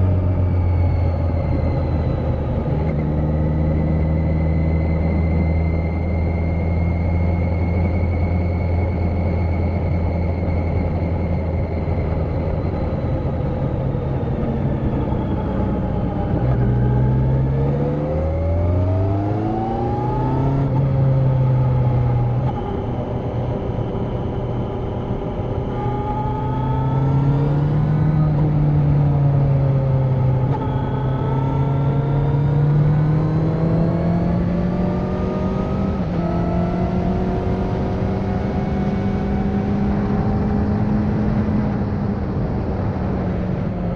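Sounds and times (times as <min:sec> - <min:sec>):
motorcycle engine revving: 0:24.6 - 0:43.0.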